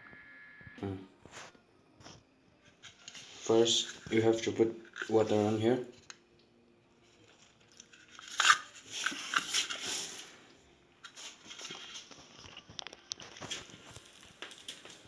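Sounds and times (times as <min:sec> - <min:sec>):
hands handling small objects: 0:07.2 - 0:10.3, 0:11.0 - 0:15.0.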